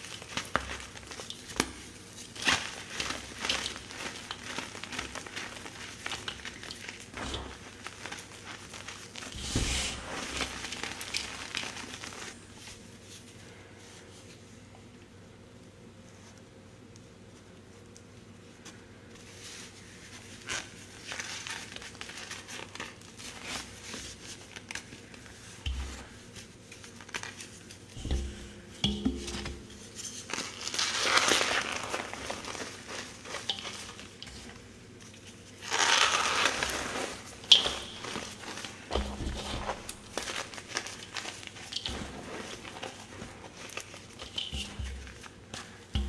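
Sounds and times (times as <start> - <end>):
chalk being crushed by hand: 35.4 - 46.0.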